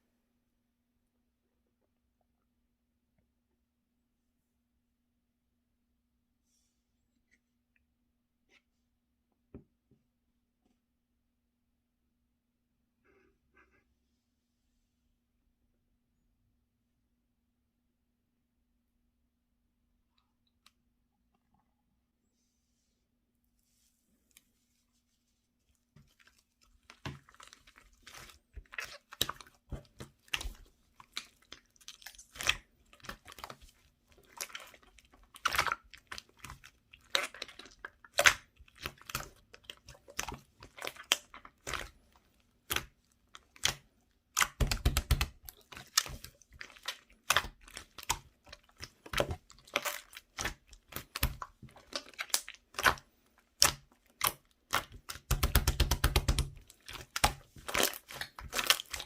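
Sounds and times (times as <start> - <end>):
slime squishing with wet pops: 25.8 - 59.0.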